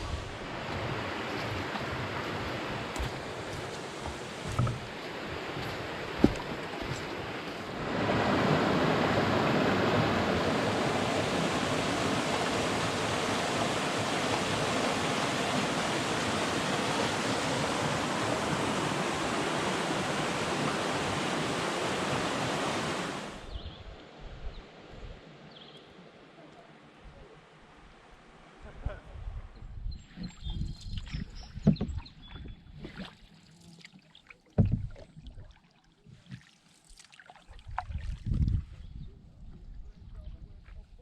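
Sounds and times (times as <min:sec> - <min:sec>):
rushing water: 0:00.0 - 0:23.5.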